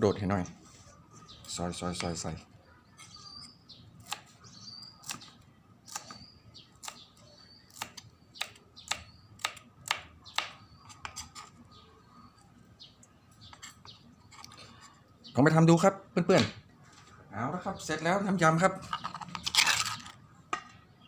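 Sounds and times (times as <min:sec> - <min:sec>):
faint bird chirps: 0:00.0 - 0:15.9.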